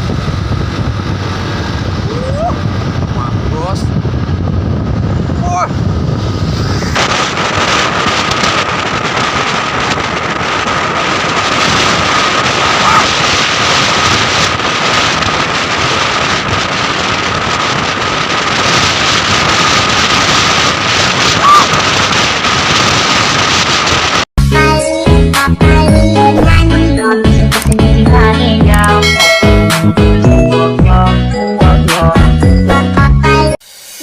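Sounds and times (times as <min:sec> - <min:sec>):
moving vehicle on road: 0:00.0 - 0:24.3
wind on microphone: 0:00.0 - 0:24.3
high whine: 0:00.0 - 0:34.0.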